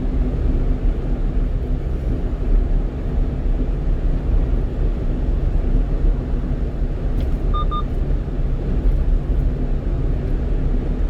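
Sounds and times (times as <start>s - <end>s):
truck road and engine rumble: 0.0s - 11.0s
short electronic beeps: 7.5s - 7.9s.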